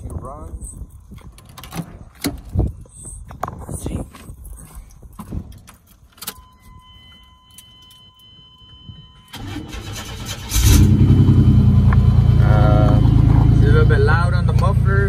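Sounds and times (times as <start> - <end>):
steady warning tone: 6.2 - 15.0
engine idling loudly: 10.5 - 15.0.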